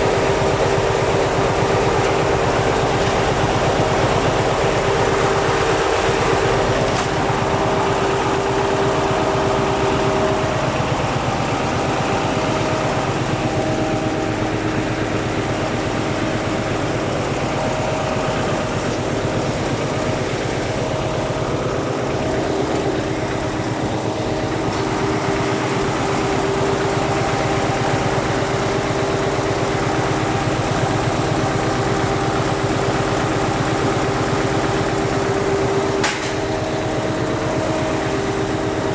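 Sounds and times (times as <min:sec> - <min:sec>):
high whine: 0:00.0 - 0:34.0
diesel engine running: 0:00.0 - 0:38.9.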